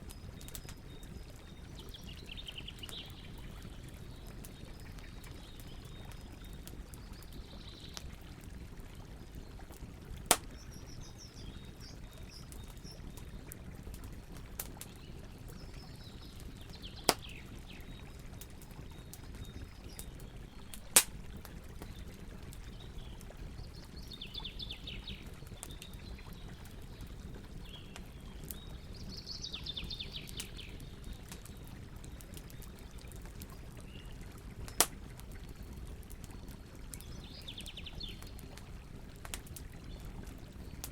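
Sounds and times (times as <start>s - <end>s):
birds singing trills: 0.0s - 8.0s, 10.4s - 13.5s, 15.0s - 21.0s, 22.7s - 32.9s, 36.3s - 38.4s
campfire burning: 0.0s - 40.9s
wood popping in fire: 0.0s - 40.9s.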